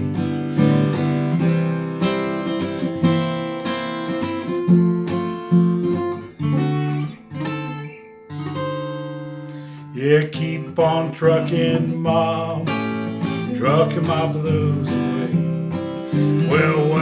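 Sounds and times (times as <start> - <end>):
acoustic guitar blues playing: 0.0 - 17.0.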